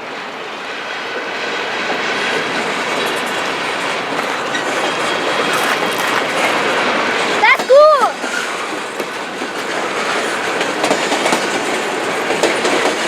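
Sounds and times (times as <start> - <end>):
train wheels clickety-clack: 0.1 - 13.0.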